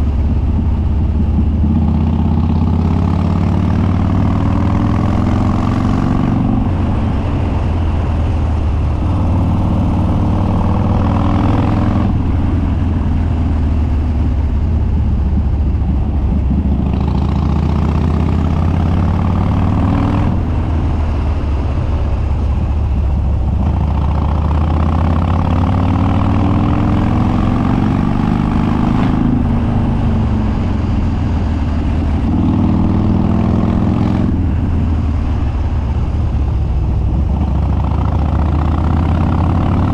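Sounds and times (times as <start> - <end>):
motorcycle engine revving hard: 1.2 - 7.2, 8.9 - 12.5, 15.4 - 21.2, 23.3 - 34.7, 37.1 - 39.9.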